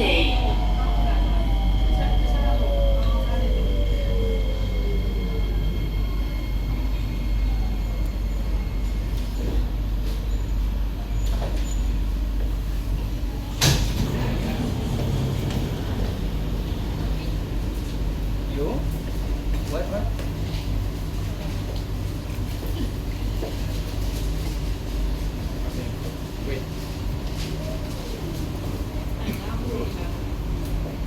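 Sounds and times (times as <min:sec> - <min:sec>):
low rumble: 0:13.0 - 0:19.6
train motors whining down: 0:13.5 - 0:17.6.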